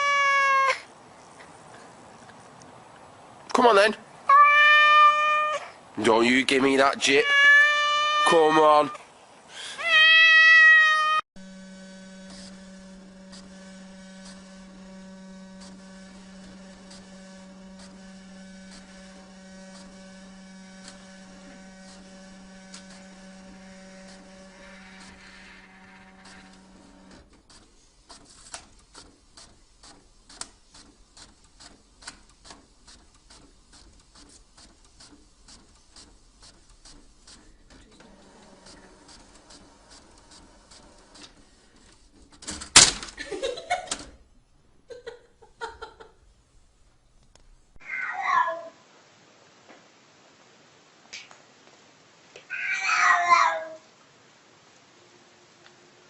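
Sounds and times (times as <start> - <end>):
electrical hum: 11.4 - 47.8.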